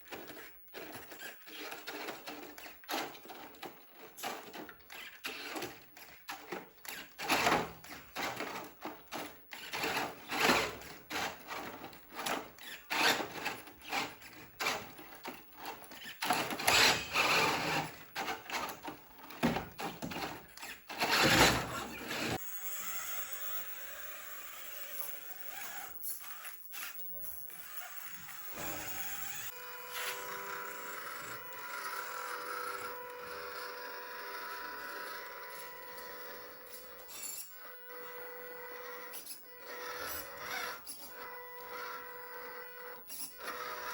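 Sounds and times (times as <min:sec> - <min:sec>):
toy car motors whirring: 0:00.0 - 0:43.9.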